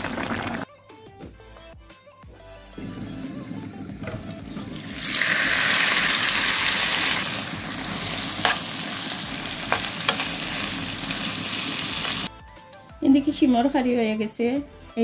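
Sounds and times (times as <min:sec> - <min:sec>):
prawns sizzling in oil: 0:03.6 - 0:12.3.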